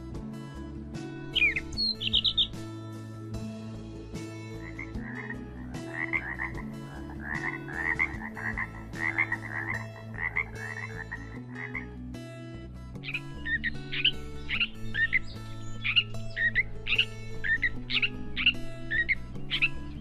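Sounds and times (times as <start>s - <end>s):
bird making rapid croaking calls: 1.3s - 2.6s, 4.5s - 11.9s, 13.0s - 20.0s.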